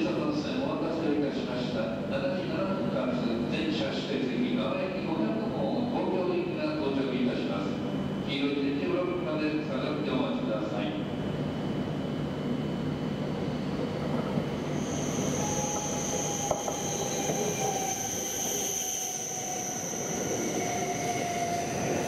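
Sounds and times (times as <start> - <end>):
train wheels rumbling on track: 13.2 - 22.0
high-pitched squeal: 14.6 - 22.0.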